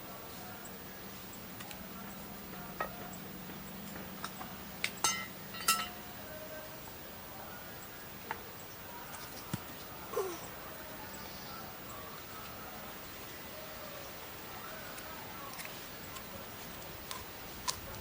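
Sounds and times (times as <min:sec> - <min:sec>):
faint steady hum: 0:00.0 - 0:18.0
light clinks and knocks: 0:03.9 - 0:06.0.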